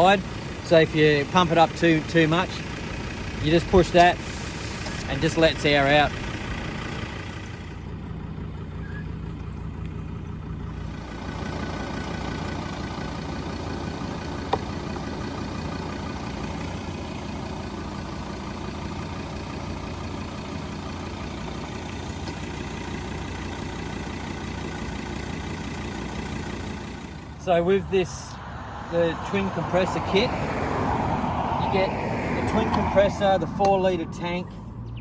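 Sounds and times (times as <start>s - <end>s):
air compressor humming: 4.1s - 5.1s.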